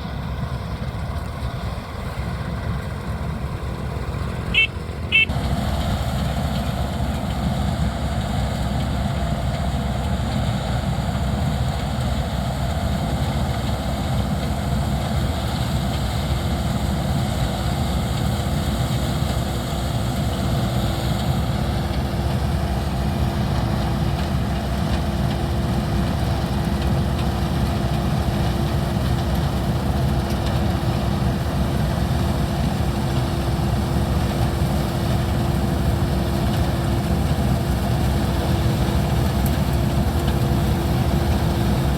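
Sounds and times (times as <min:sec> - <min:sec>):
combine harvester engine drone: 0:00.0 - 0:41.9.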